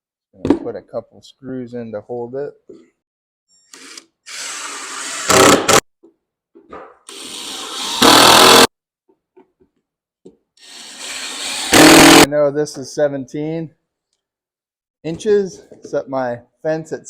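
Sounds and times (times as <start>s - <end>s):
power drill driving screws: 3.7s - 5.8s, 7.1s - 8.7s, 10.6s - 12.3s.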